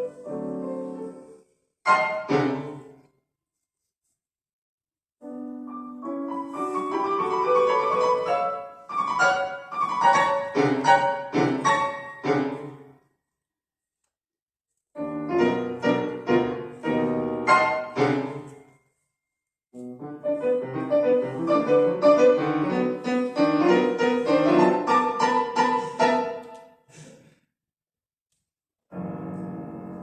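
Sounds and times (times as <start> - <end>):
solo piano piece: 0.0 - 2.9, 5.2 - 12.8, 15.0 - 18.6, 19.9 - 26.6, 28.9 - 30.0.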